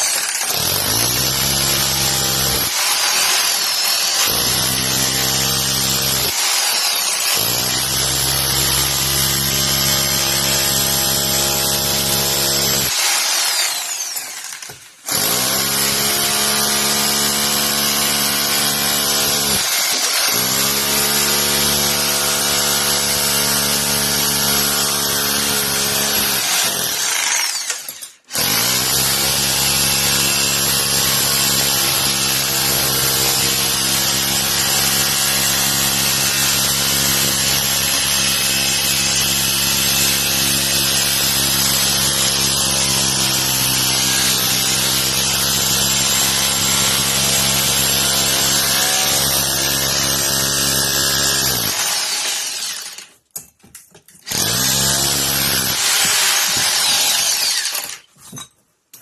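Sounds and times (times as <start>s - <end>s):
rotary hammer chiseling concrete: 0.0s - 59.0s.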